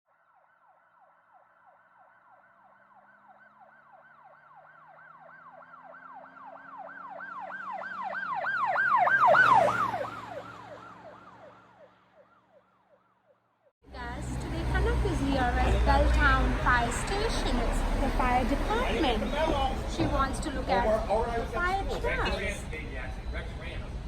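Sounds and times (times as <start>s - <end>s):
fire engine siren yelping: 0.3s - 13.1s
truck engine rumbling: 13.8s - 24.0s.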